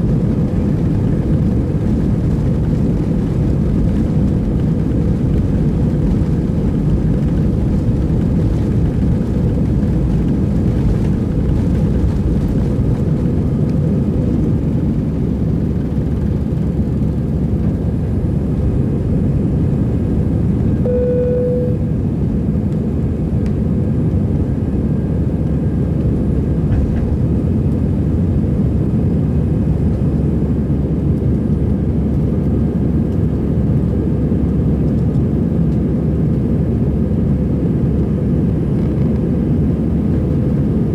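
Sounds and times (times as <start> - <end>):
jet engine rumble in cabin: 0.0 - 40.9
short single tone: 20.8 - 21.9.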